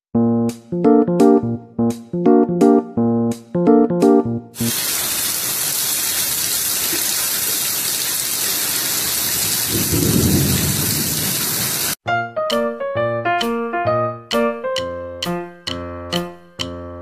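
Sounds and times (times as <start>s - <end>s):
light piano music: 0.2s - 4.6s, 12.0s - 17.0s
heavy rain pouring: 4.6s - 12.0s
thunder rumble: 9.5s - 12.0s.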